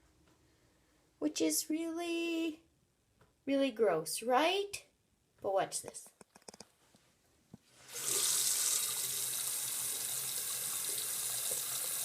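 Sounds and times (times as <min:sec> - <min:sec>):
faucet water running into sink: 0:07.9 - 0:12.0.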